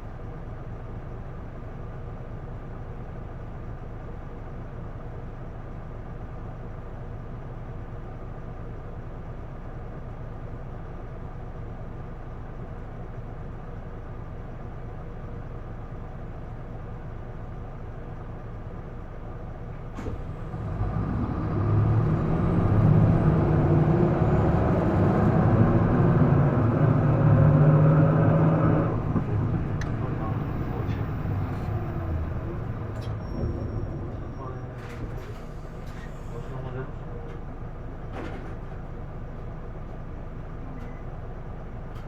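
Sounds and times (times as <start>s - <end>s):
bus diesel engine idling: 0.0s - 42.0s
bus engine accelerating: 19.7s - 42.0s
click: 29.2s - 30.1s.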